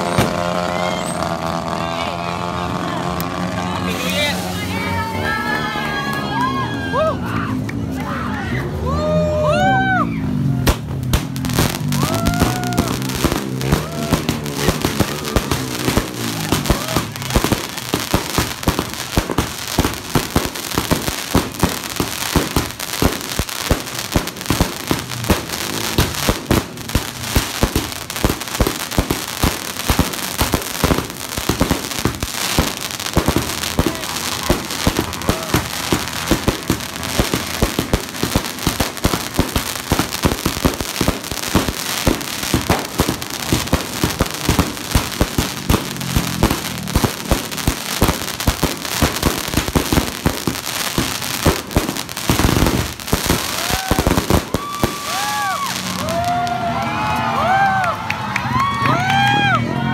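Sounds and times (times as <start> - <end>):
fireworks pops and bursts: 0.0 - 1.6, 10.6 - 56.2
dense fireworks crackle: 0.0 - 7.1, 9.0 - 59.6.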